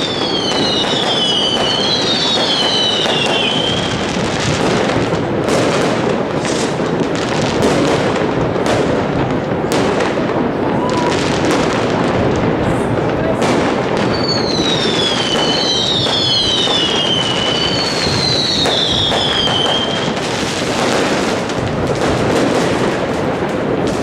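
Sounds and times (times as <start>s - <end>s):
fireworks whistles falling in pitch: 0.0s - 4.2s, 10.6s - 11.6s, 14.0s - 21.5s
fireworks bangs and crackling: 0.0s - 24.0s.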